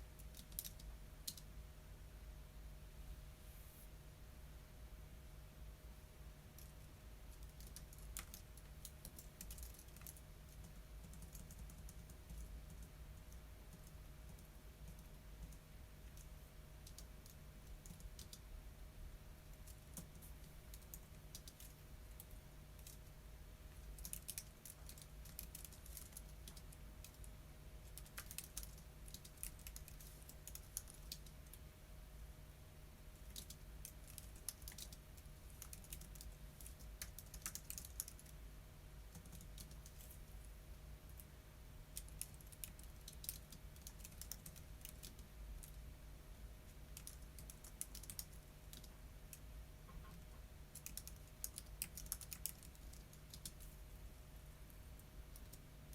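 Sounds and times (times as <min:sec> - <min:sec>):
low steady hum: 0:00.0 - 0:55.9
keyboard typing: 0:00.2 - 0:01.5, 0:07.3 - 0:18.4, 0:19.6 - 0:23.1, 0:23.7 - 0:31.6, 0:33.1 - 0:38.4, 0:39.1 - 0:40.2, 0:41.9 - 0:45.8, 0:46.9 - 0:53.8.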